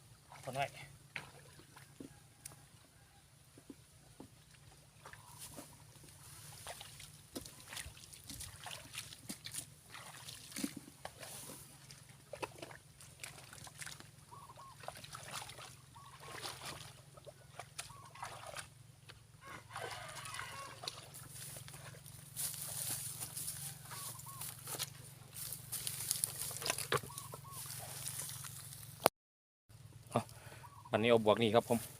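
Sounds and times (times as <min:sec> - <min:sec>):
hands splashing in muddy water: 0:06.5 - 0:18.7, 0:19.7 - 0:24.8.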